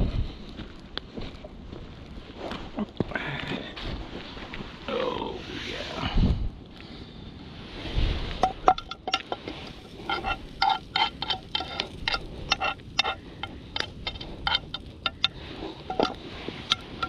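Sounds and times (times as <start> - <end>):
metal utensil scraping pan: 8.4 - 17.0.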